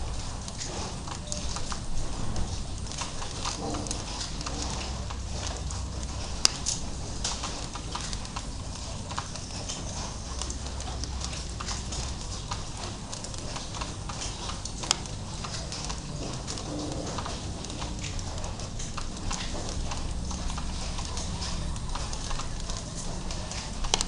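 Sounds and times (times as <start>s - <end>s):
raindrops ticking: 0.0s - 24.0s
steady rain hiss: 0.0s - 24.0s.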